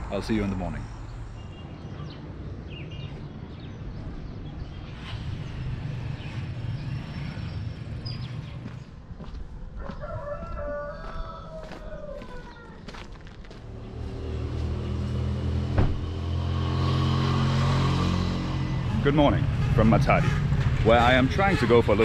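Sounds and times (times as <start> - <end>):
rooster crowing: 9.8 - 13.0.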